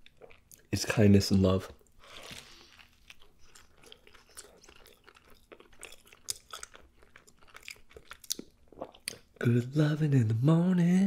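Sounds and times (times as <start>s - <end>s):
chewing with crunches: 0.0s - 0.7s, 1.8s - 9.5s.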